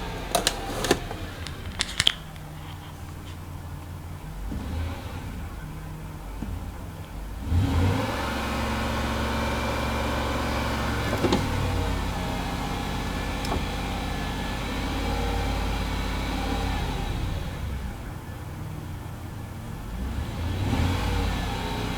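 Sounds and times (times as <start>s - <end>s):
car engine revving: 0.0s - 21.9s
short clicks: 0.4s - 2.5s.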